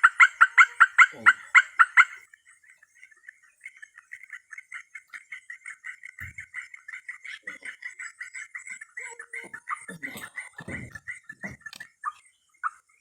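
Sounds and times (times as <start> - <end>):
pulsed animal chirping: 0.0 - 5.7.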